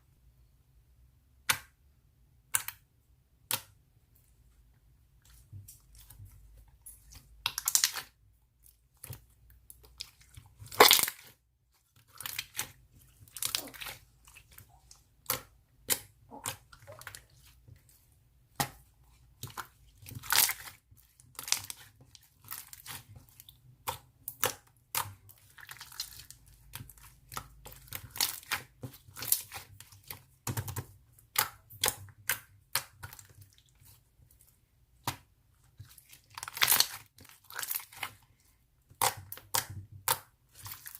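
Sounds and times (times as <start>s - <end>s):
slime squished crackling and popping: 6.9s - 8.2s, 9.0s - 11.4s, 12.0s - 17.4s, 18.4s - 33.8s, 35.0s - 38.2s.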